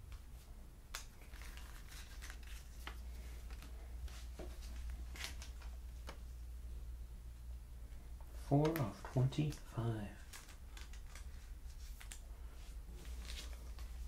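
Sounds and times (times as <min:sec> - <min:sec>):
steady low hum: 0:00.0 - 0:14.0
cards rustling and clicking: 0:00.9 - 0:06.3, 0:08.3 - 0:14.0.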